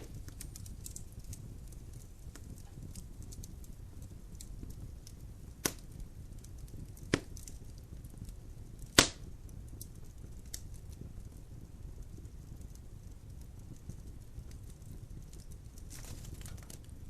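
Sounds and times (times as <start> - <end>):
wood popping: 0.0 - 3.7, 4.3 - 7.8, 8.8 - 9.4, 15.4 - 17.0
fire crackling: 0.0 - 17.0
fire rushing: 0.0 - 17.0.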